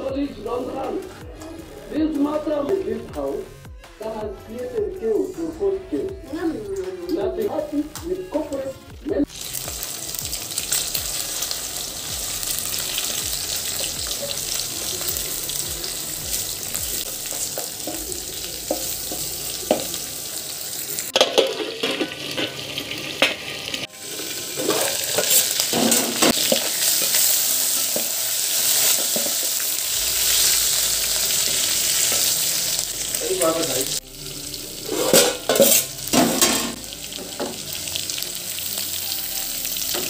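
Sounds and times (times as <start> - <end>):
vegetables sizzling in a pan: 9.2 - 40.0
utensil clattering against pan: 21.1 - 22.6.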